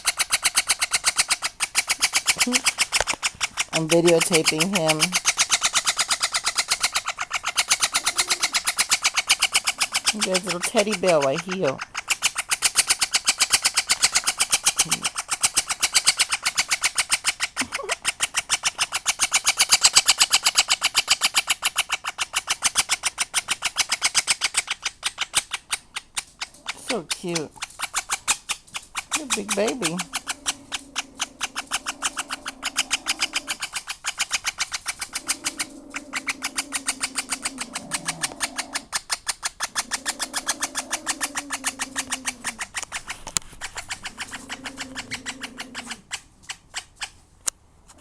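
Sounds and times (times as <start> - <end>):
parrot chick harsh calls: 0.0 - 20.8
parakeet raspy chirps: 0.0 - 47.1.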